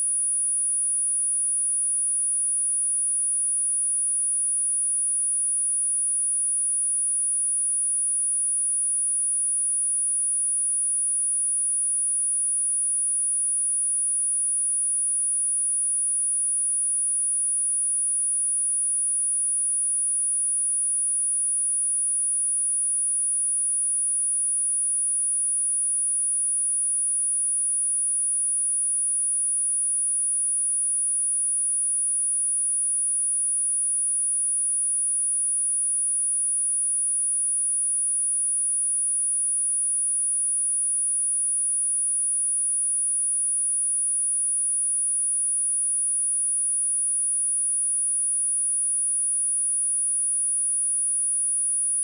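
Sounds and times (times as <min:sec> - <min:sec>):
high-pitched sine test tone: 0:00.0 - 0:02.1, 0:26.0 - 0:52.0.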